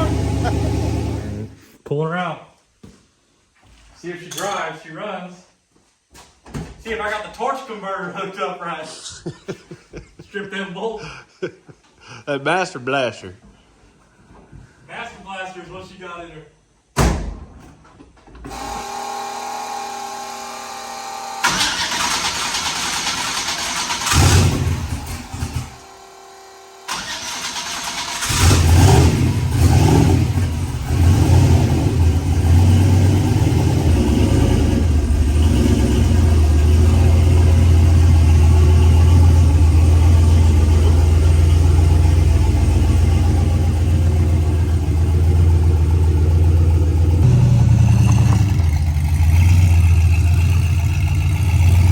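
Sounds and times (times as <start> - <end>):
car engine starting and idling: 0.0 - 1.7, 21.4 - 51.9.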